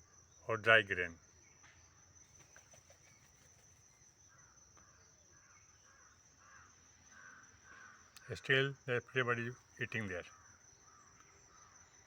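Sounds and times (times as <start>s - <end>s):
distant crows cawing: 5.8s - 8.2s, 10.2s - 11.9s.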